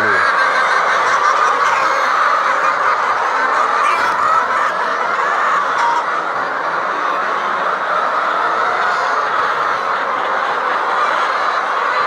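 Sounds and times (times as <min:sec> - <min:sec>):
flock of chickens clucking: 0:00.0 - 0:12.0.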